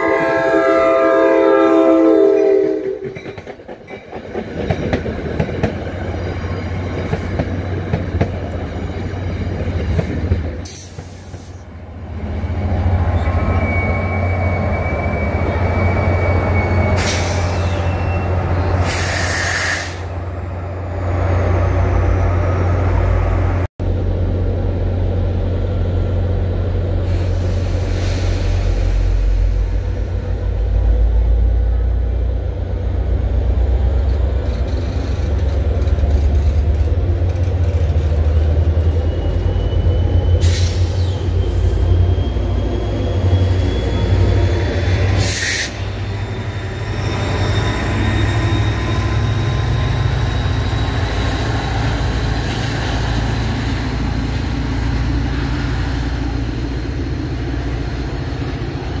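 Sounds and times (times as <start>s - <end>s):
train wheels rumbling on rails: 0.0s - 59.0s
thin squealing tones: 13.0s - 19.4s, 38.7s - 54.2s.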